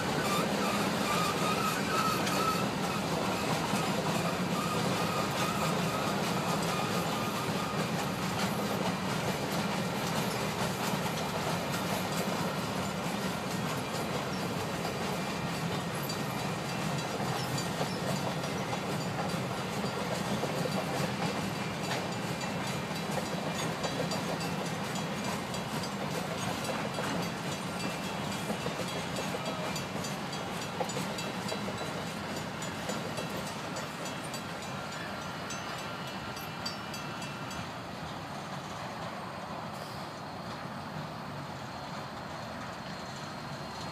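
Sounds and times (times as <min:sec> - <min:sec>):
train wheels clacking on rails: 0:00.0 - 0:43.9.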